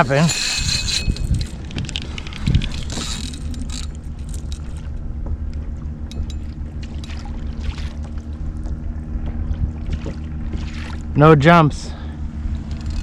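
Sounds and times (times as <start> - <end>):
steady low hum: 0.0 - 13.0
water splashing against kayak hull: 4.6 - 11.2.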